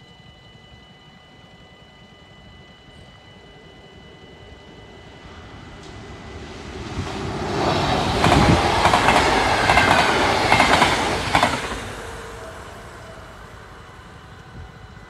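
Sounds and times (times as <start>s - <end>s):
electric train passing: 0.0s - 15.0s
wheels clattering over rails: 7.0s - 12.3s.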